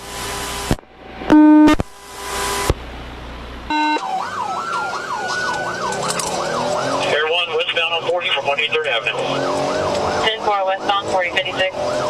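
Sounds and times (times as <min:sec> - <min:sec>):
radio static hissing: 0:00.2 - 0:02.8
loud electronic beep: 0:01.3 - 0:01.8, 0:03.7 - 0:04.2
police siren yelp: 0:03.7 - 0:12.0.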